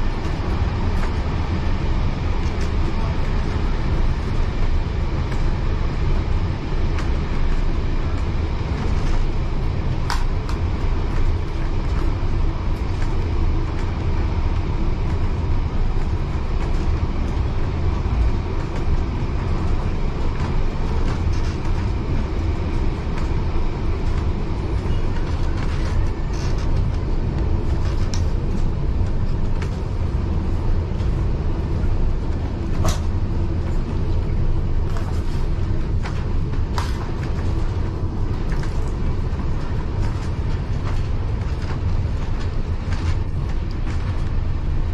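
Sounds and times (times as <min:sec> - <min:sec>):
train wheels rumbling on rails: 0:00.0 - 0:44.9
sharp clicks of train wheels: 0:32.7 - 0:33.2.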